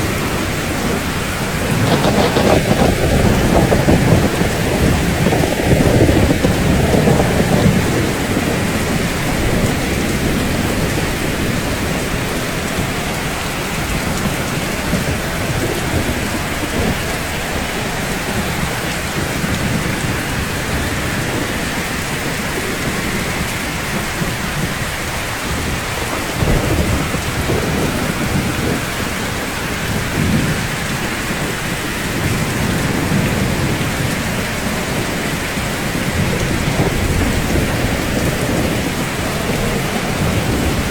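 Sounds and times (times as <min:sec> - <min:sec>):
rain on rooftops: 0:00.0 - 0:40.9
thunder rumbling: 0:00.0 - 0:40.9.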